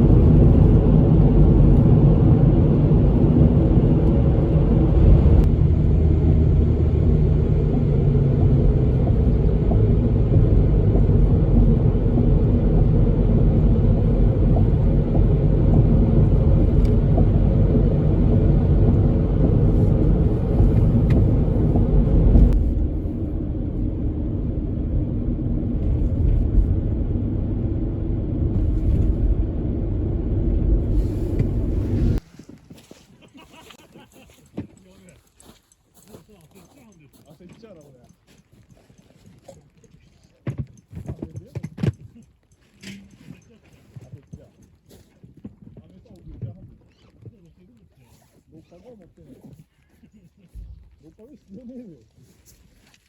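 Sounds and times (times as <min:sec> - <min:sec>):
car engine and road rumble: 0:00.0 - 0:32.6.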